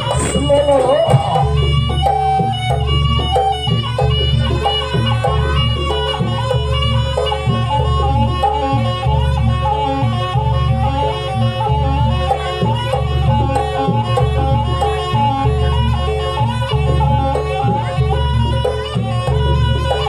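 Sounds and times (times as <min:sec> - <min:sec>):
high wavering melody: 0:00.0 - 0:12.2
drums: 0:00.0 - 0:20.0.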